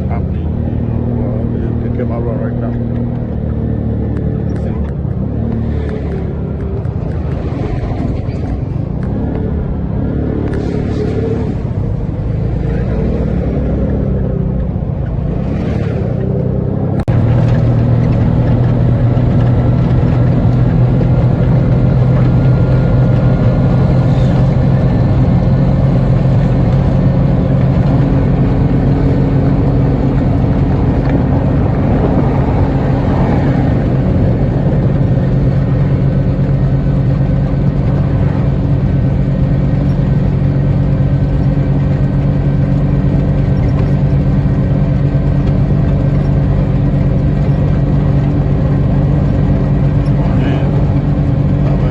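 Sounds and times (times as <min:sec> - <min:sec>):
road noise: 0:00.0 - 0:51.9
vehicle engine droning: 0:00.0 - 0:51.9.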